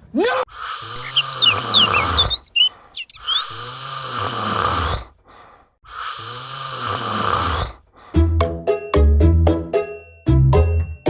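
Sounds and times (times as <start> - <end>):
high bird chirps: 1.0 - 3.6
cartoon snoring: 3.6 - 7.9.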